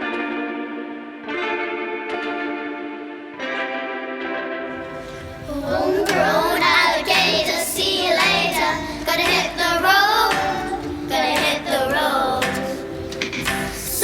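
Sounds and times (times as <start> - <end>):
instrumental backing track with beat: 0.0 - 14.0
girl singing: 5.4 - 13.0, 13.6 - 14.0.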